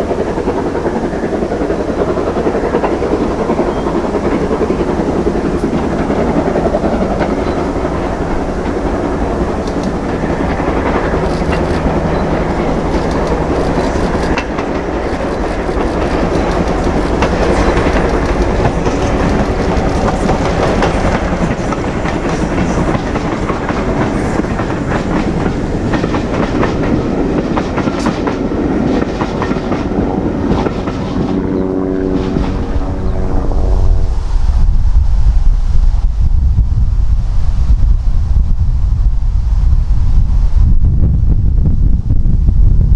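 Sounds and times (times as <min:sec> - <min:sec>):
train wheels clattering over rail joints: 0:00.0 - 0:32.7
train rumbling past: 0:00.0 - 0:42.9.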